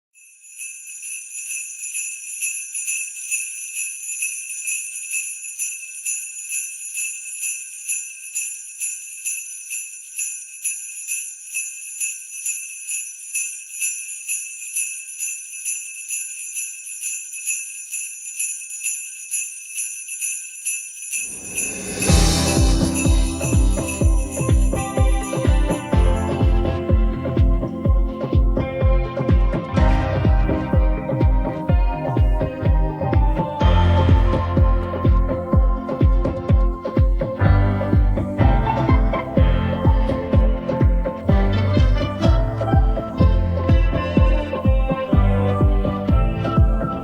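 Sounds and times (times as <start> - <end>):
jingle bells shaken: 0.1 - 47.0
music: 21.3 - 47.0.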